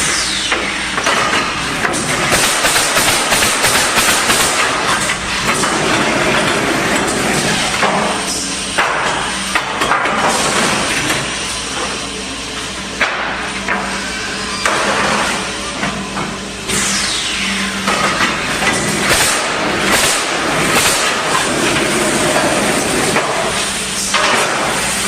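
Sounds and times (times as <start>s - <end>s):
steady motor hum: 0.0s - 25.0s
nail gun shots: 2.3s - 5.0s, 19.0s - 21.4s.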